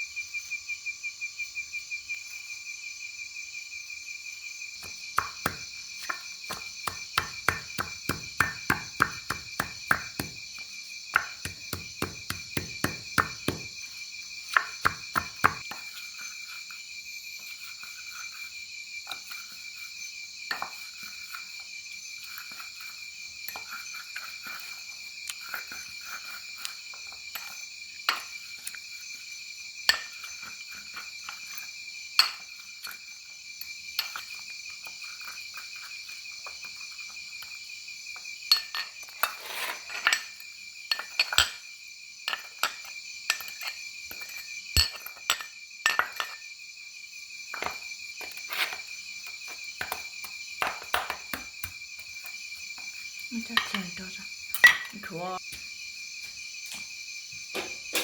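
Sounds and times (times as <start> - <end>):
crickets trilling: 0.0 - 58.0
sharp clinks and knocks: 4.8 - 13.9, 38.5 - 41.7, 42.3 - 46.5, 47.5 - 55.6, 56.7 - 58.0.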